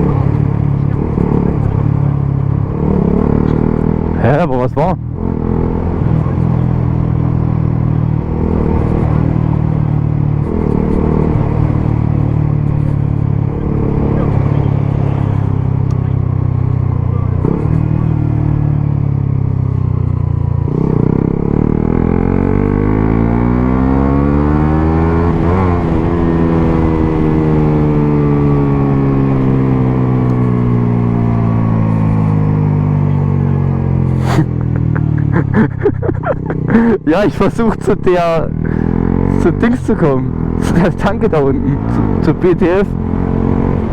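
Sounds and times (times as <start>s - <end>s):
motorcycle engines running: 0.0s - 43.9s.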